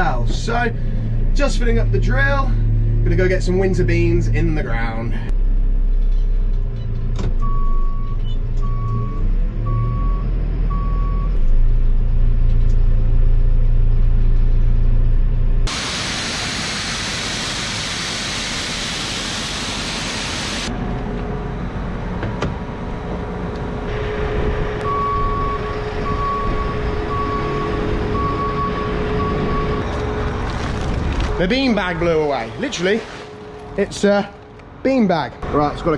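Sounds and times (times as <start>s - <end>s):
diesel machinery running: 0.0s - 35.9s
loud steady hiss: 15.7s - 20.7s
high warning beeps: 24.8s - 29.9s.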